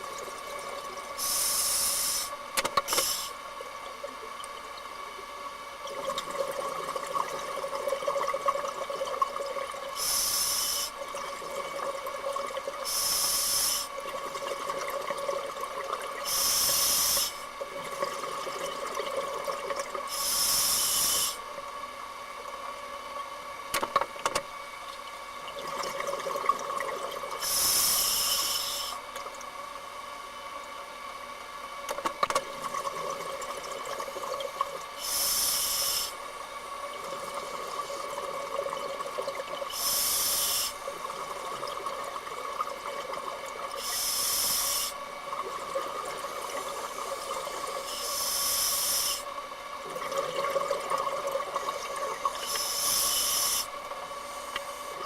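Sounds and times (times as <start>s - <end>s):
steady hum: 0.0s - 55.0s
diver's bubbles hissing underwater: 1.1s - 3.4s, 9.9s - 11.8s, 12.8s - 14.0s, 15.8s - 21.5s, 25.7s - 29.1s, 34.0s - 36.3s, 39.6s - 42.1s, 42.8s - 55.0s.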